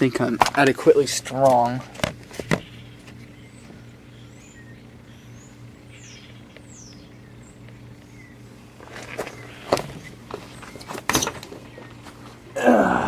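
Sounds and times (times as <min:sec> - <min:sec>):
steady low hum: 0:00.0 - 0:13.0
faint high bird chirps: 0:02.6 - 0:09.8.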